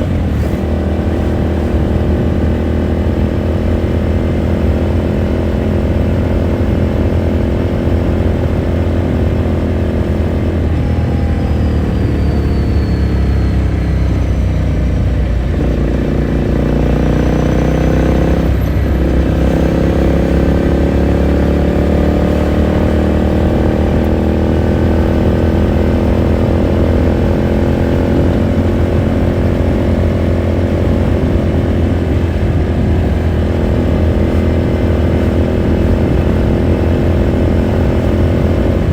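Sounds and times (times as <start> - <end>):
motorcycle engine while riding: 0.0 - 38.9.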